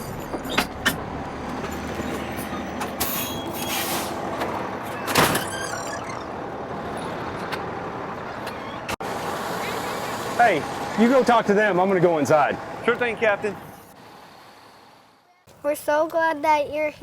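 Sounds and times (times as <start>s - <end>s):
air brakes hissing: 3.0s - 4.2s
fire truck engine running: 5.8s - 15.2s.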